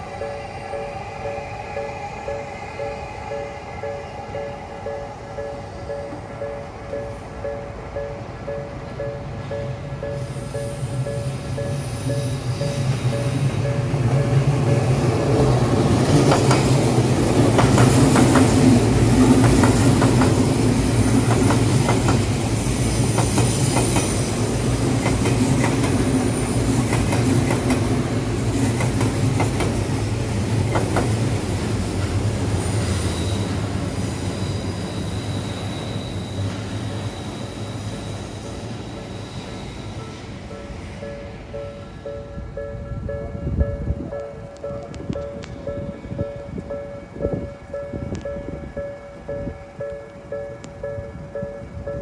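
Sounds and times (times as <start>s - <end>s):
electric train hum: 0.0s - 52.0s
high wheel squeal: 10.0s - 15.0s, 32.5s - 41.0s
train wheels clacking over rail joints: 16.0s - 30.0s, 30.6s - 31.8s.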